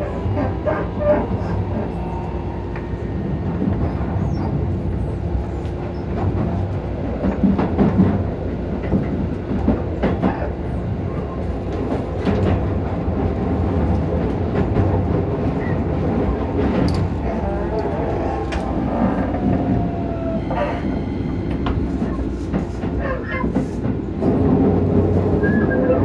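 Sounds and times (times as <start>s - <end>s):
train wheels rumbling: 0.0s - 26.0s
wheels clacking over rail joints: 11.4s - 26.0s.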